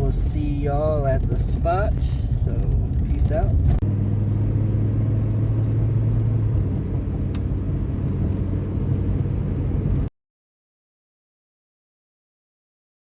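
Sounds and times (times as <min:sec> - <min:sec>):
truck engine and road noise: 0:00.0 - 0:10.1.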